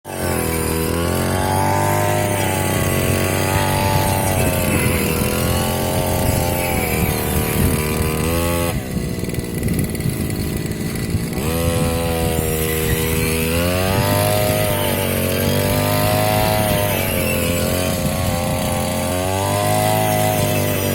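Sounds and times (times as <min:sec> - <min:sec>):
brush-cutter engine running: 0:00.0 - 0:20.9.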